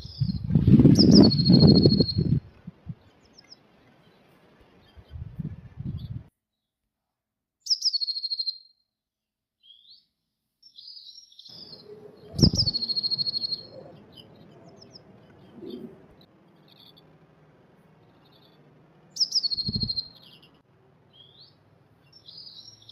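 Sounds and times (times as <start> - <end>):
bird song with trill: 0.0 - 6.7, 7.6 - 8.8, 9.6 - 17.1, 18.0 - 22.9.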